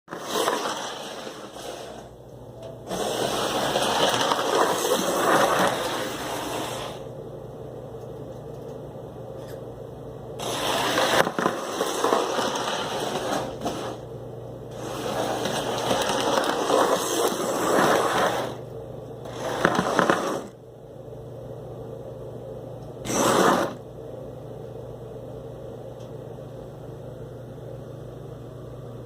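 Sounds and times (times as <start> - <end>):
model train whirring and rattling: 14.7 - 18.6.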